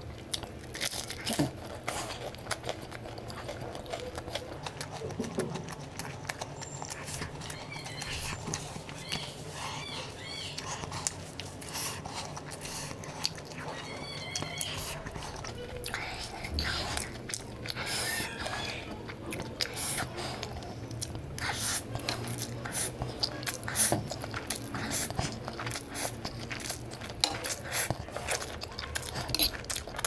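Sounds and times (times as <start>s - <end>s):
chewing noodles: 0.0s - 30.0s
low steady hum: 0.0s - 30.0s
high chirping squeaks: 6.5s - 10.7s, 13.7s - 15.0s.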